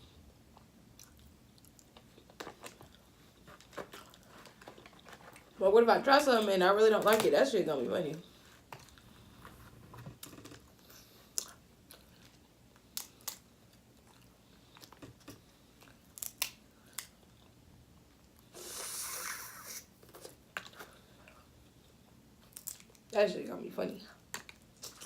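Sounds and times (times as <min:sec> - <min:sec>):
person chewing: 0:00.6 - 0:05.5, 0:11.2 - 0:15.1, 0:24.5 - 0:25.0.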